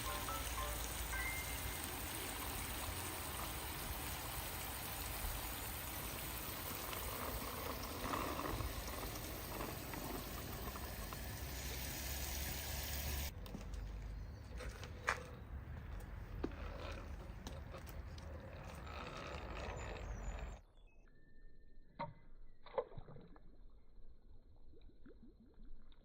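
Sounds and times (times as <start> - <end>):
water running: 0.0 - 13.3.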